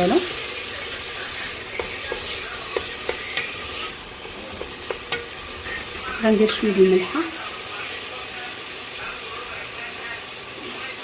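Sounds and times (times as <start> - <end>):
vegetables sizzling in oil: 0.0 - 11.0
utensil clicking against pot: 1.0 - 6.8.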